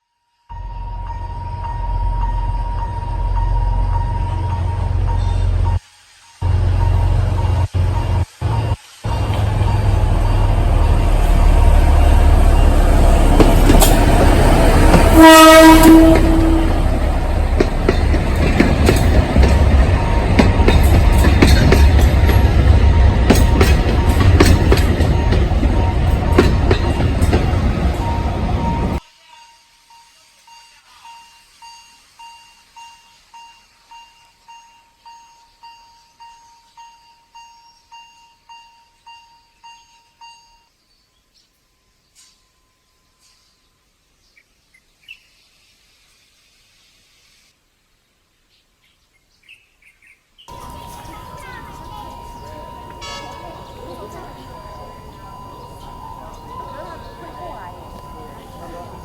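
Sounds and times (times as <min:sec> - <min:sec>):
train rumbling: 0:00.5 - 0:29.0, 0:50.5 - 0:59.0
wheels clicking over rail joints: 0:06.4 - 0:29.0, 0:50.5 - 0:59.0
train horn blast: 0:09.1 - 0:29.0, 0:50.5 - 0:59.0
electronic warning beeps: 0:50.5 - 0:59.0.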